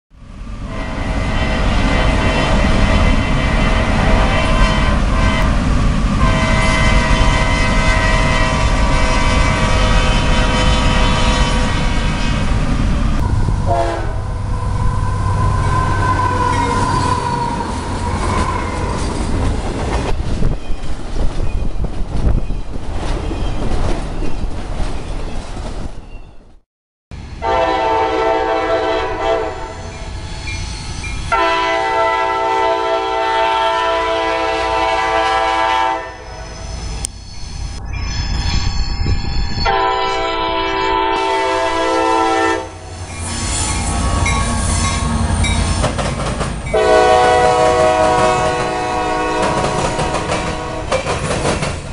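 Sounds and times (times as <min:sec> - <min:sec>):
locomotive engine and wheel rumble: 0:00.2 - 0:26.5, 0:36.2 - 0:51.9
locomotive horn blowing: 0:00.6 - 0:05.6, 0:06.2 - 0:12.6, 0:13.2 - 0:19.0, 0:27.4 - 0:30.0, 0:31.3 - 0:37.1, 0:39.6 - 0:45.7, 0:46.7 - 0:51.0
multi-note train air horn: 0:00.6 - 0:05.6, 0:06.2 - 0:12.5, 0:13.2 - 0:17.3, 0:27.4 - 0:29.9, 0:31.3 - 0:36.6, 0:39.6 - 0:45.2, 0:46.7 - 0:51.0.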